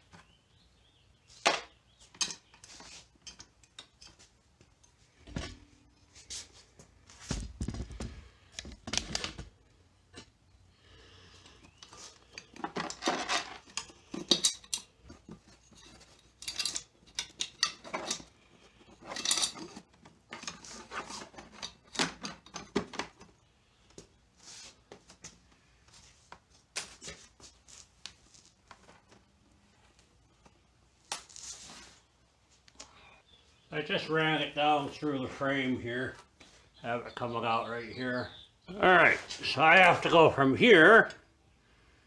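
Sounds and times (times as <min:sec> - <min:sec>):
cable scraping against parts: 0:11.6 - 0:23.3.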